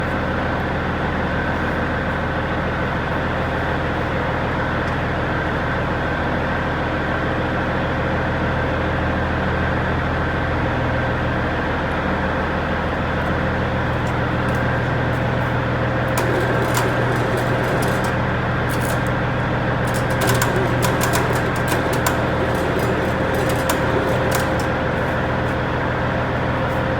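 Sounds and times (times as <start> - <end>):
tractor diesel engine running: 13.8 - 26.9.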